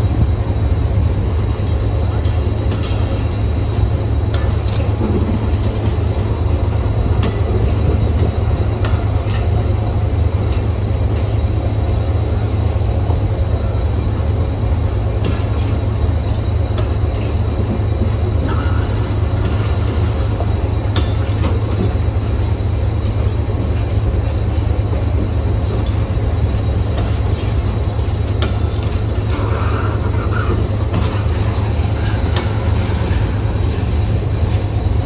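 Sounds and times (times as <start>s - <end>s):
train rolling rumble: 0.0s - 35.0s
wheel and coupling clanks: 15.1s - 35.0s.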